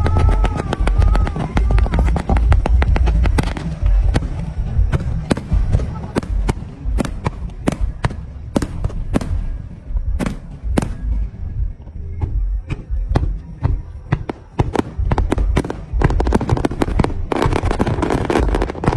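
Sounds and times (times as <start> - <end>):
firework cracks: 0.0 - 9.6, 14.3 - 18.9
firework bangs: 0.0 - 11.4, 12.8 - 18.9
low rumble: 0.0 - 18.9.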